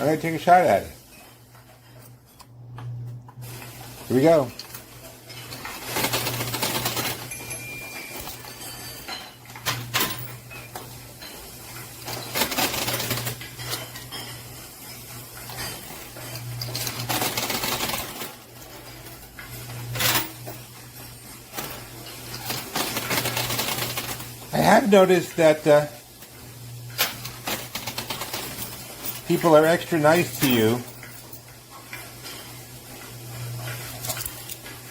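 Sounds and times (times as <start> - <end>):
coins clinking in arcade machine: 3.4 - 34.9.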